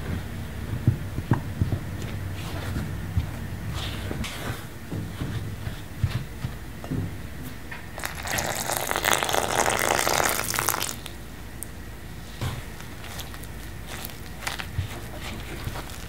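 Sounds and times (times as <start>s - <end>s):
spatula tapping and scraping bowl: 1.2s - 7.1s
milk pouring into glass bowl: 8.0s - 11.1s.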